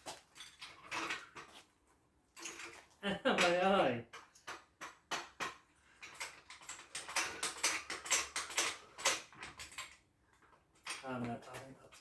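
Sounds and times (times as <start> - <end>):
metal tools clinking: 5.4 - 10.0.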